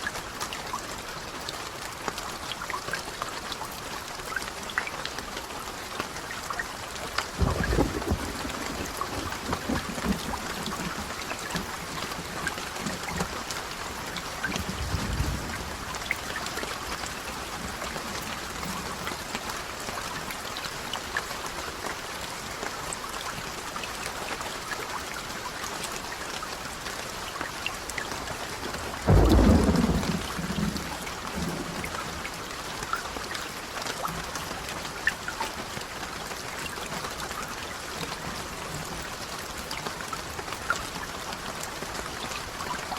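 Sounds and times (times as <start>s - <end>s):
steady rain falling: 0.0s - 42.9s
loud thunderclap: 7.4s - 11.0s, 29.1s - 31.9s
thunder rumble: 7.4s - 12.2s, 14.5s - 16.2s, 29.0s - 32.3s.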